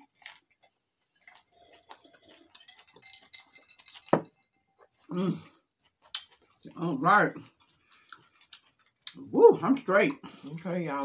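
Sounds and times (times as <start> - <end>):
chewing crunchy taco shell: 0.0 - 4.1, 4.8 - 10.7
person humming: 5.1 - 5.4.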